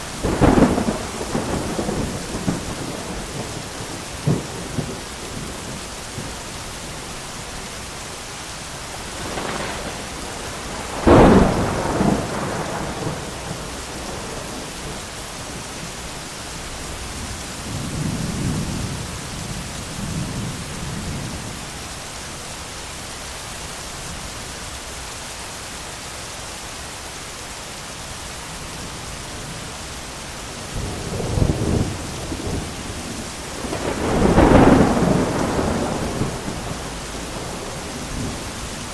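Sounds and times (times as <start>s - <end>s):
low thunder rolls: 0.0s - 7.2s, 9.0s - 15.6s, 30.6s - 38.9s
heavy rain: 0.0s - 38.9s
loud thunder clap: 9.1s - 15.0s, 30.8s - 38.7s.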